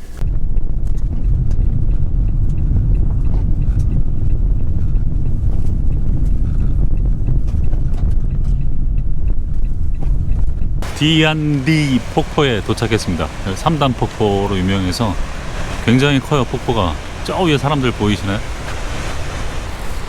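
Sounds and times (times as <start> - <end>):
car engine and road noise: 0.0 - 20.0
faint ticks: 0.8 - 10.7.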